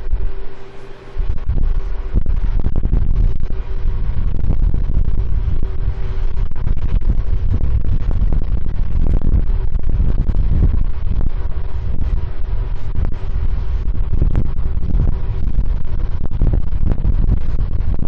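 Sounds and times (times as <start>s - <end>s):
faint steady hum: 0.0s - 18.0s
wind buffeting microphone: 0.0s - 18.0s.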